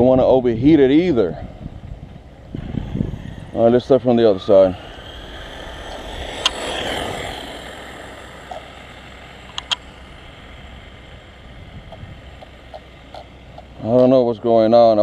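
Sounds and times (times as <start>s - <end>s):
vehicle rushing by: 2.2s - 14.4s
sharp click: 6.3s - 6.6s, 9.5s - 9.9s.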